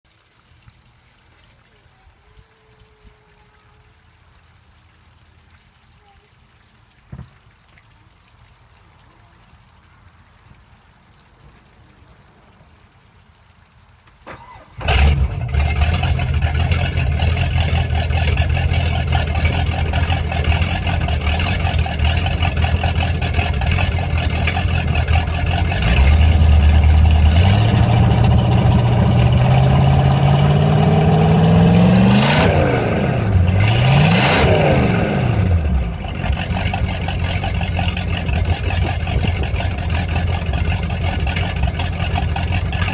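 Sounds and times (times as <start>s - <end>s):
boat engine starting: 14.3s - 42.9s
boat engine idling and revving: 14.8s - 42.9s.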